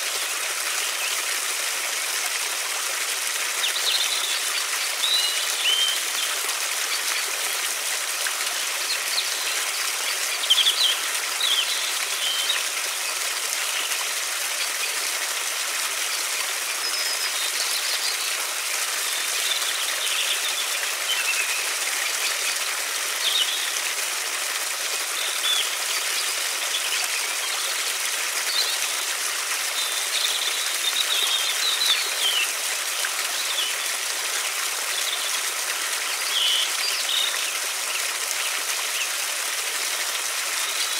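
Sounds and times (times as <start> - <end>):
river water running: 0.0 - 40.9
small birds chirping: 3.6 - 7.6.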